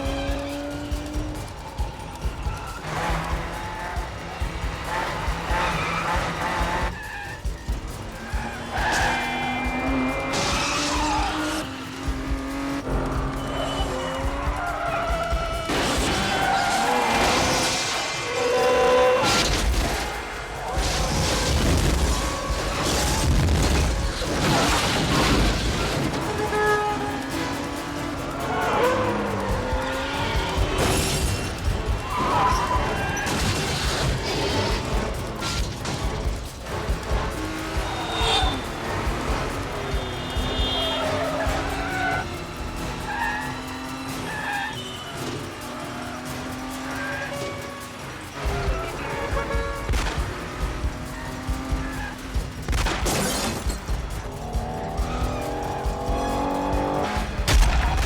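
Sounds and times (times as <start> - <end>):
film soundtrack music: 0.0 - 44.8, 46.8 - 58.0
cars running hard: 0.0 - 58.0
tyres squealing: 0.0 - 58.0
loud rush of noise: 1.0 - 46.7
crashing impacts: 15.6 - 44.4, 49.2 - 58.0.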